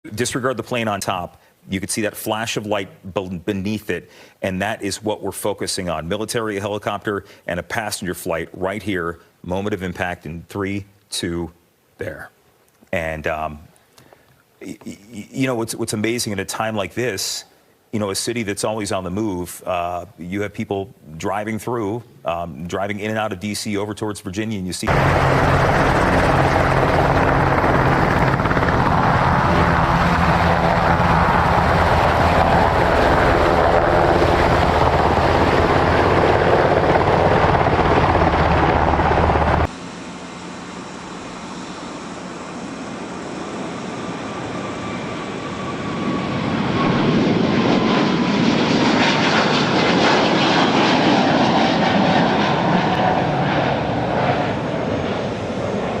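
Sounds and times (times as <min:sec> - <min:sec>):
helicopter rotor and turbine: 0:24.9 - 0:56.0
jet airliner engines whining: 0:24.9 - 0:56.0.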